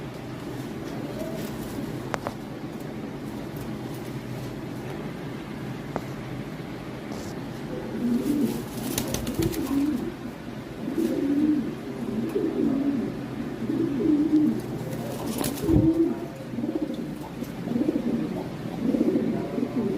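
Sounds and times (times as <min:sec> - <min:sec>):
pigeons cooing: 0:00.7 - 0:02.3, 0:07.6 - 0:19.9.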